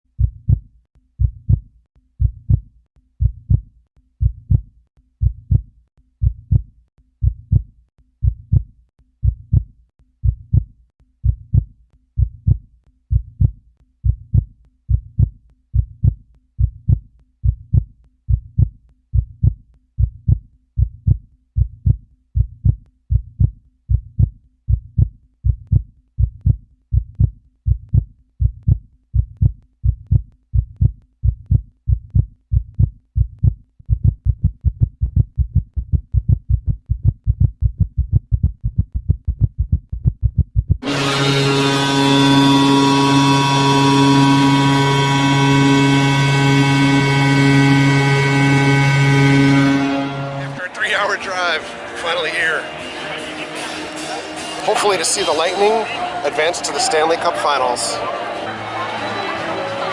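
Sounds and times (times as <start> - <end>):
heartbeat thumping: 0.2 - 40.8.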